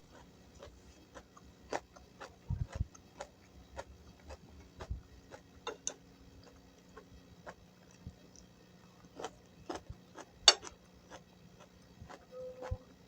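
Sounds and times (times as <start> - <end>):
chewing crunchy food: 0.0 - 13.0
soft low thumps: 2.4 - 3.0.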